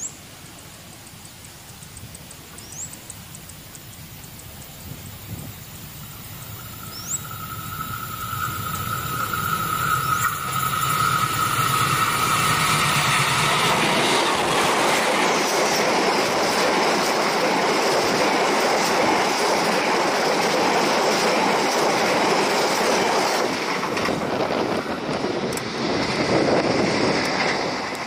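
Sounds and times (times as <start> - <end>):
train wheels rumbling and clattering: 1.2 - 28.0
high steady whine: 4.3 - 17.2.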